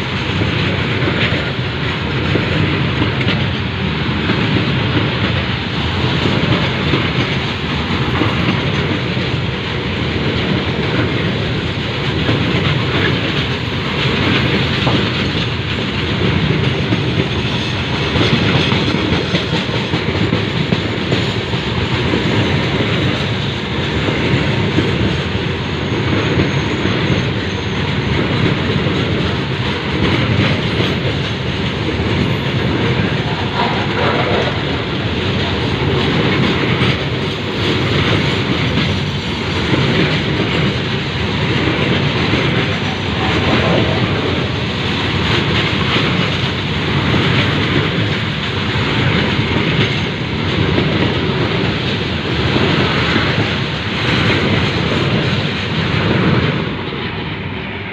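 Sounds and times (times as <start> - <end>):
train rolling past: 0.0 - 57.9
wheels clattering over rail joints: 26.1 - 56.6.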